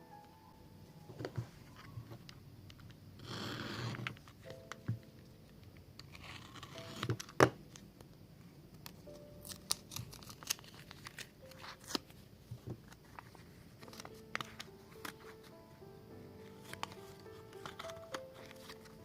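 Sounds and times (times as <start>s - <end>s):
packaging torn open: 6.0s - 7.5s, 9.0s - 12.2s, 13.0s - 15.4s, 16.4s - 19.0s
packaging crinkling: 6.0s - 7.9s, 9.0s - 15.6s, 16.4s - 19.0s.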